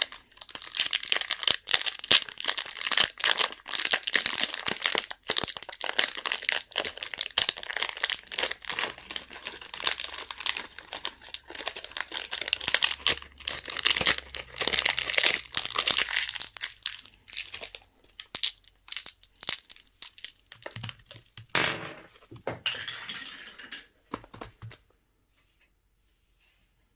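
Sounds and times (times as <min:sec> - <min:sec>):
candy wrappers crinkling: 0:00.0 - 0:21.5.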